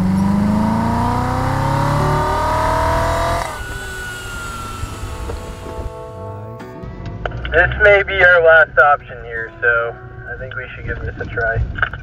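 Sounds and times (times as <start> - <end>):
vehicle engine accelerating: 0.0 - 12.0
faint high whine: 1.0 - 6.6.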